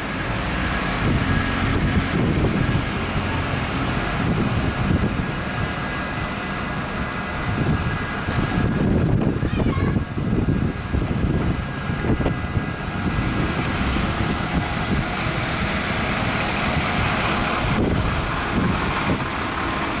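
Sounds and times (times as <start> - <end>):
bus diesel engine rumbling: 0.0 - 20.0
high whistles: 19.1 - 19.7.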